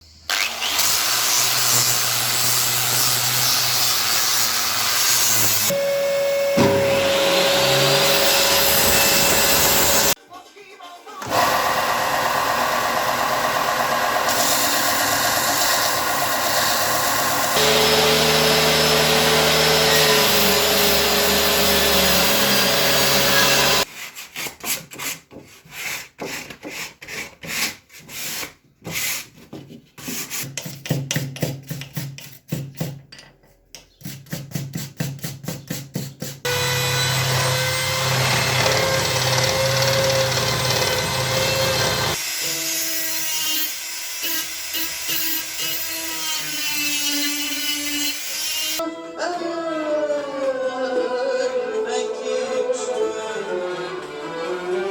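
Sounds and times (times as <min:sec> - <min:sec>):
power tool running: 0:00.3 - 0:10.2, 0:11.2 - 0:23.9, 0:36.5 - 0:43.0.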